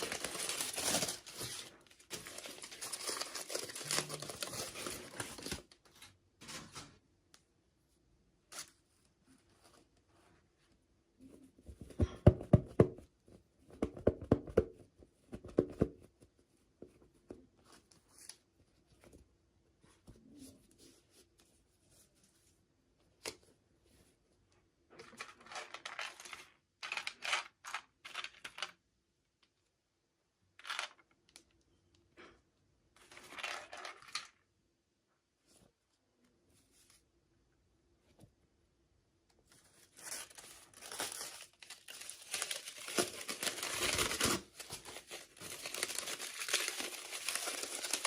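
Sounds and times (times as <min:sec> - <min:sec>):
wrapping tearing and crinkling: 0:00.0 - 0:05.8, 0:39.8 - 0:48.0.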